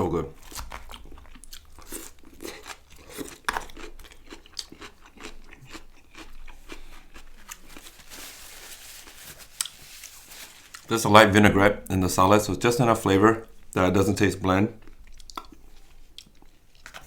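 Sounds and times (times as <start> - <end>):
close chewing and crunching: 0.2 - 8.2, 9.5 - 10.9, 14.7 - 17.0
wet mouth clicks: 15.2 - 17.0.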